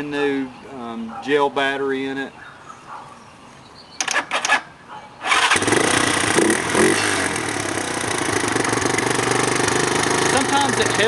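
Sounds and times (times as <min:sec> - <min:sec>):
electric starter whirring: 0:05.2 - 0:11.0
motorcycle engine idling: 0:05.4 - 0:11.0.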